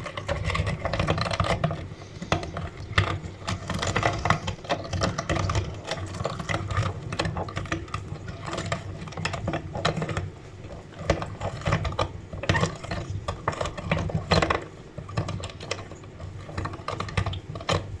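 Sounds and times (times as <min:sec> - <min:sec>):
meat grinder crunching and clicking: 0:00.0 - 0:18.0.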